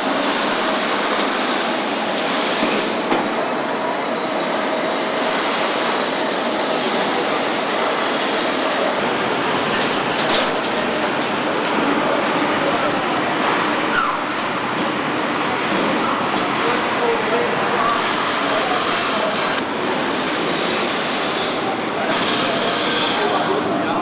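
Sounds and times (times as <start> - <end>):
factory machinery and air noise: 0.0 - 24.0.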